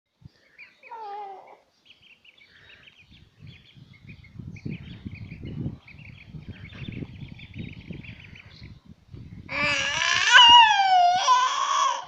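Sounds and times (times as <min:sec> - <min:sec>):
small birds chirping: 0:00.1 - 0:10.7.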